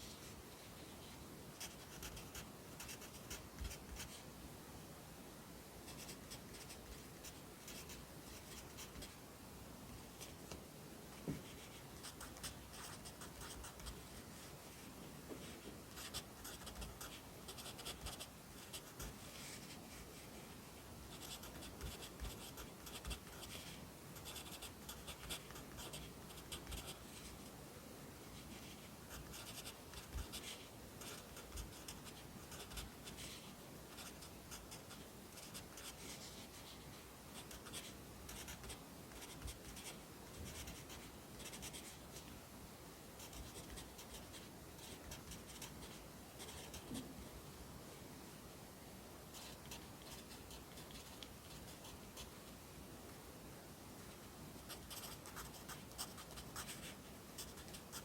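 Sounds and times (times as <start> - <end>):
pencil scratching on paper: 1.6 - 4.2, 16.0 - 19.8, 21.1 - 27.3, 28.4 - 36.7, 54.7 - 58.0.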